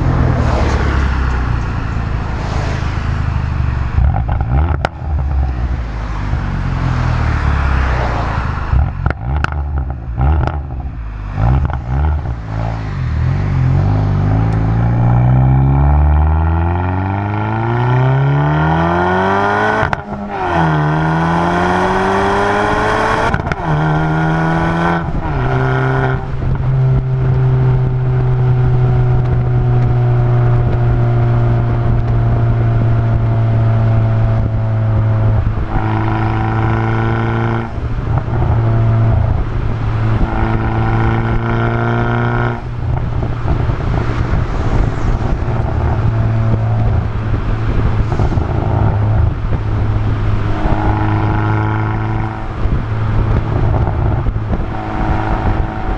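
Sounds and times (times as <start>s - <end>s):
car exhaust revving and droning: 0.0s - 55.9s.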